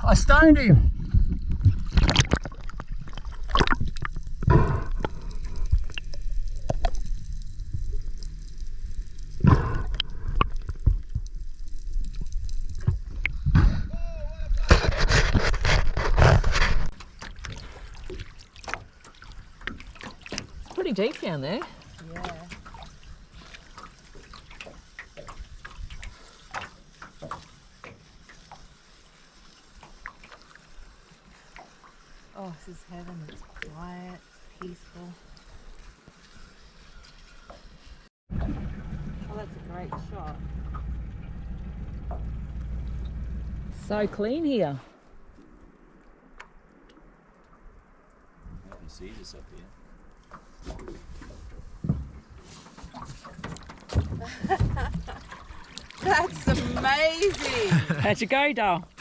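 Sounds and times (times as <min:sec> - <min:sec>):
water gurgling and sloshing: 0:00.0 - 0:59.0
water drips: 0:01.8 - 0:13.4, 0:16.9 - 0:37.8, 0:52.6 - 0:59.0.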